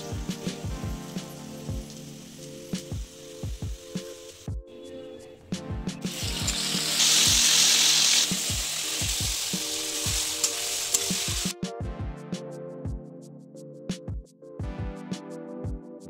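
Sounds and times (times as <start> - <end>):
tomatoes sizzling in hot oil: 0.0 - 4.4, 6.1 - 11.5
background music with steady beat: 0.0 - 16.0.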